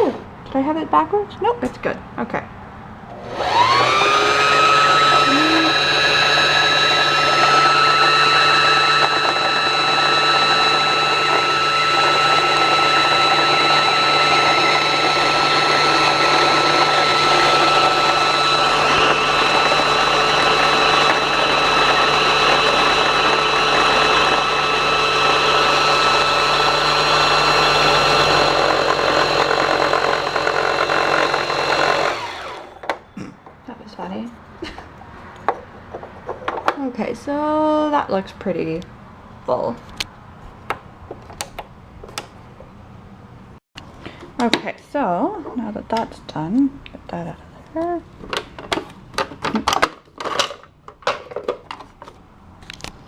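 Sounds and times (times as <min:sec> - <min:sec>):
sewing machine motor whining: 0:03.1 - 0:32.9.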